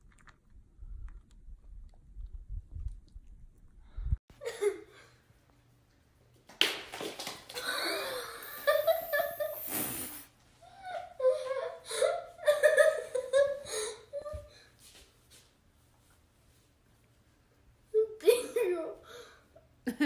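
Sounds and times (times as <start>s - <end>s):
person laughing breathily: 7.6s - 10.2s.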